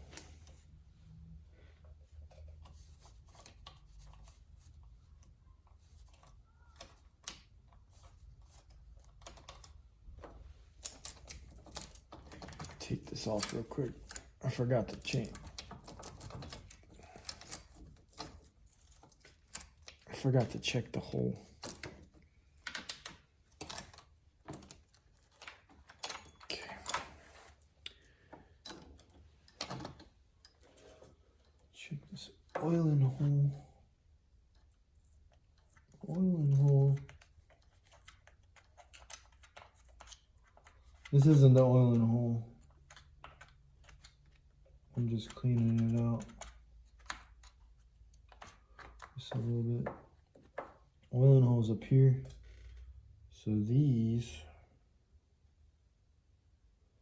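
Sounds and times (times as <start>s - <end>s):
light clicks of small parts: 5.2s - 20.7s.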